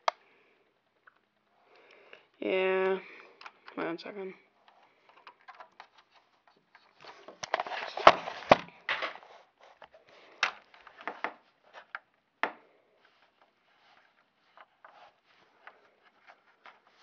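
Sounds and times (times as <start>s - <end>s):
plastic parts rustling and clattering: 4.6s - 12.1s.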